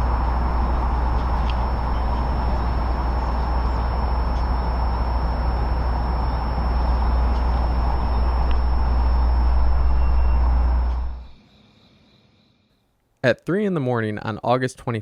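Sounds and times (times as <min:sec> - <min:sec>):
vehicle engine rumble: 0:00.0 - 0:11.4
thin high whine: 0:00.0 - 0:12.9.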